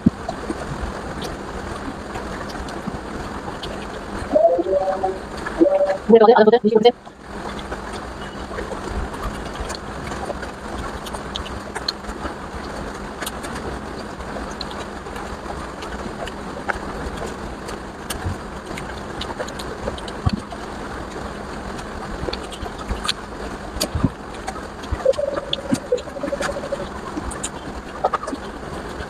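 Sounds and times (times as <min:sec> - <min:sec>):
low hum: 0:24.8 - 0:27.5.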